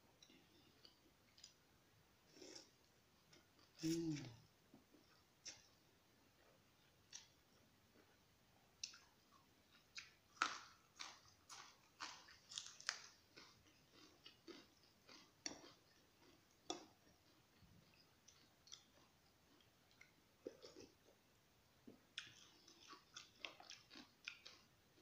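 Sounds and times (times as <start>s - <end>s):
wet chewing and smacking: 8.8s - 21.0s, 22.2s - 25.0s.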